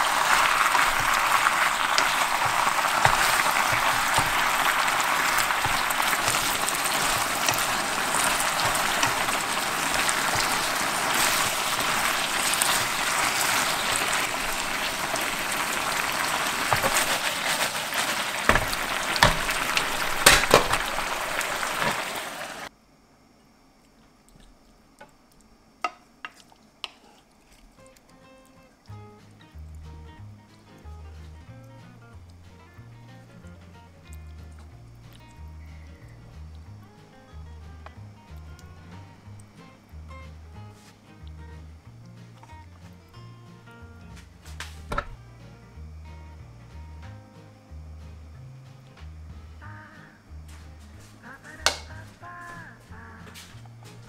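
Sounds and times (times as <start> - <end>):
food sizzling in a frying pan: 0.0 - 22.7.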